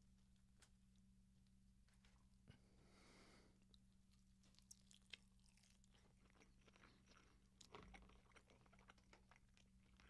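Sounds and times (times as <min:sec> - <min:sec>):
low electrical hum: 0:00.0 - 0:10.0
chewing chicken wing: 0:03.7 - 0:10.0.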